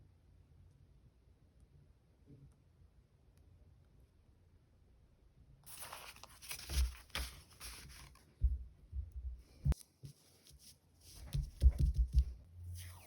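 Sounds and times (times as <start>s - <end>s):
soft taps: 11.2s - 12.4s.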